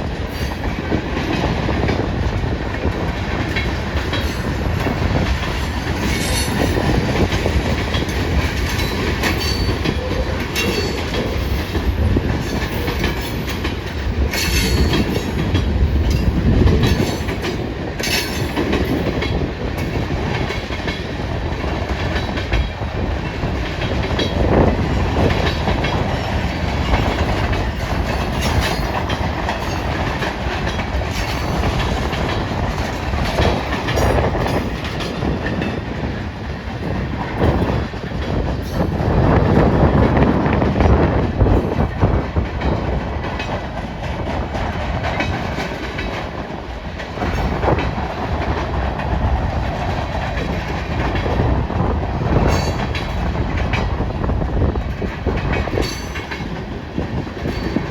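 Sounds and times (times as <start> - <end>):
train wheels clacking over rail joints: 0.0 - 57.9
wind buffeting microphone: 0.0 - 57.9.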